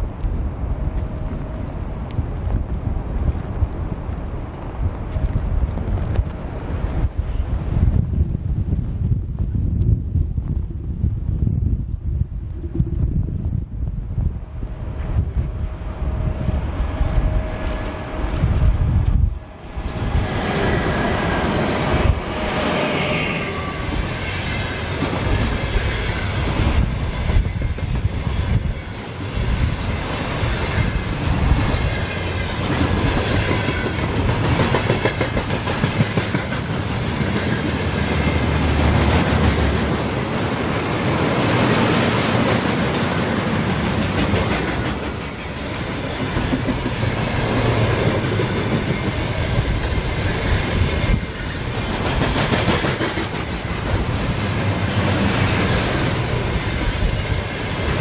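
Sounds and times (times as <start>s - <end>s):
train wheels clattering over rail joints: 23.8s - 58.0s.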